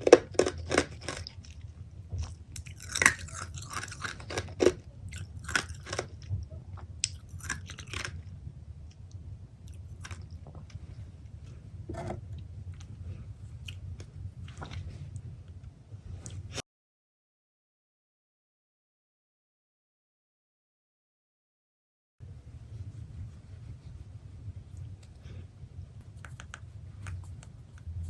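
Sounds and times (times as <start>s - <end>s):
crunchy chewing: 0.0s - 8.4s, 9.6s - 10.9s.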